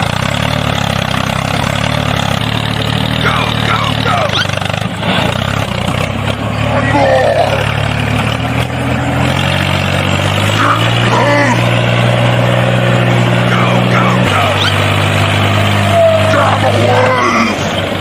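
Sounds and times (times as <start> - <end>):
vehicle engine drone: 0.0 - 18.0
voices: 3.0 - 5.4, 6.5 - 8.0, 10.4 - 18.0.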